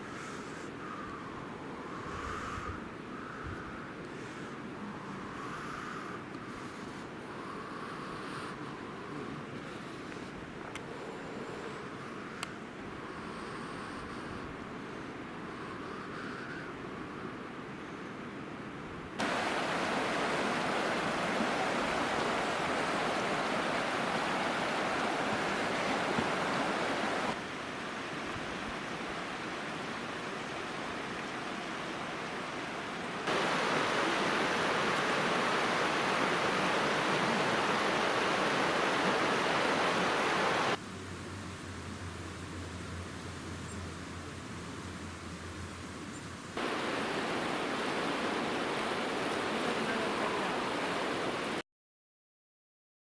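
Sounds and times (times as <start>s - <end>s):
waterfall rushing: 19.2s - 40.8s, 46.6s - 51.6s.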